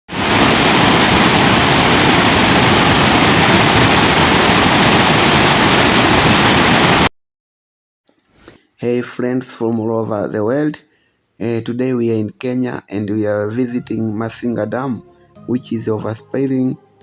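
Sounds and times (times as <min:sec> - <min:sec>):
water rushing over spillway: 0:00.1 - 0:07.0.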